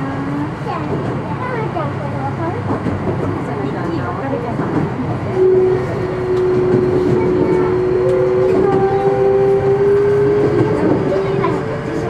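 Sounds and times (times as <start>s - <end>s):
train whine: 0.0s - 12.0s
electric train running: 2.4s - 12.0s.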